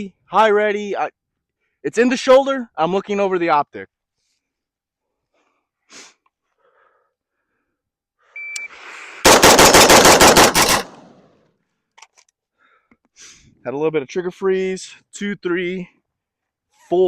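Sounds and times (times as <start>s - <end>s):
electronic timer beep: 8.4s - 8.8s
rapid rifle shots: 9.2s - 11.2s.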